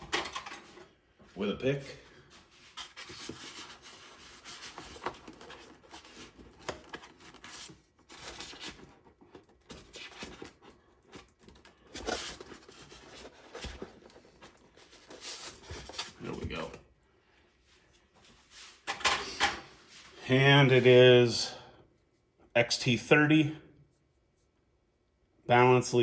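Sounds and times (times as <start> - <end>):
packaging rustle: 2.7 - 16.7.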